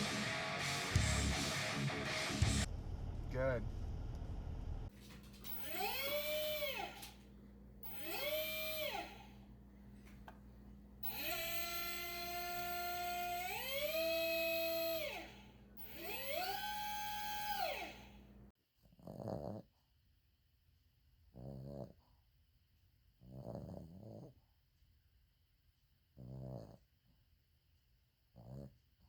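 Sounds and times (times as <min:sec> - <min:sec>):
steady low hum: 0:02.4 - 0:18.5.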